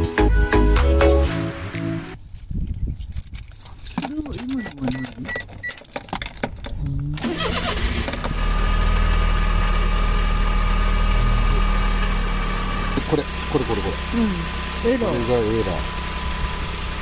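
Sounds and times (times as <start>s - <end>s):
light clicking and rattling: 2.2s - 7.1s
car engine cranking and idling: 4.1s - 17.0s.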